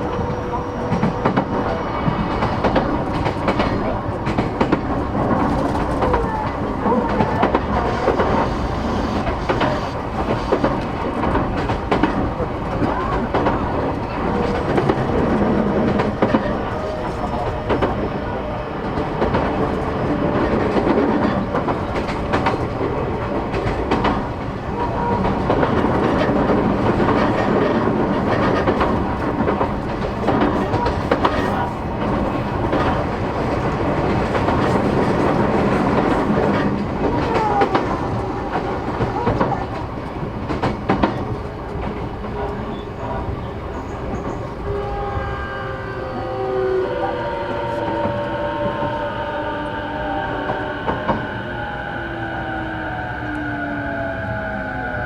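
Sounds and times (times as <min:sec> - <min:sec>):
train wheels rumbling on rail: 0:00.0 - 0:55.0
traction motor hum: 0:07.7 - 0:10.8.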